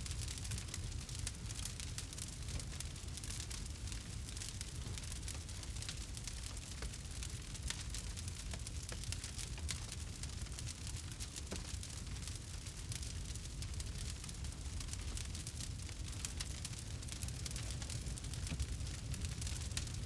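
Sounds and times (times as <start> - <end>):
fire low rumble: 0.0 - 20.0
campfire wood crackling and popping: 0.1 - 20.0.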